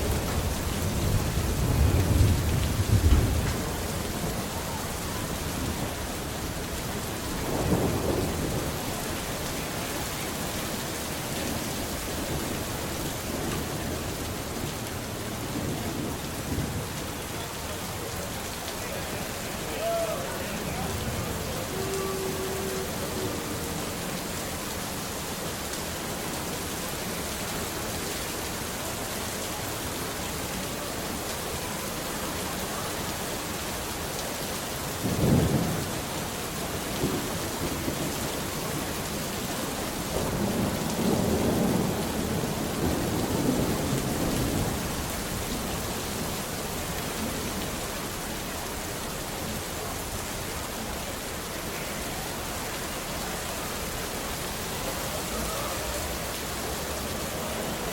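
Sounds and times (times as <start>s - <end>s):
thunder clap: 0.0s - 4.5s
thunder rumbling: 0.0s - 9.9s
steady rain: 0.0s - 57.9s.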